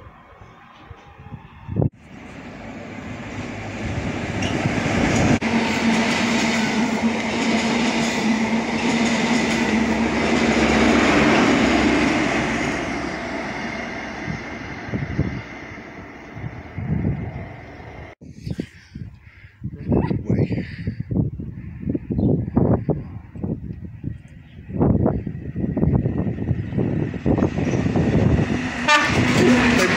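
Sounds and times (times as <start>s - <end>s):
train passing at speed: 0.0s - 18.2s, 24.6s - 29.9s.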